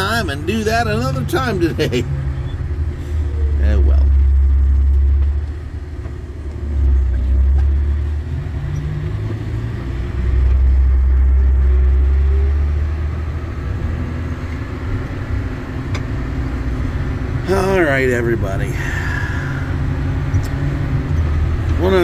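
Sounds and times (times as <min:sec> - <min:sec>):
vehicle engine and road rumble: 0:00.0 - 0:22.0.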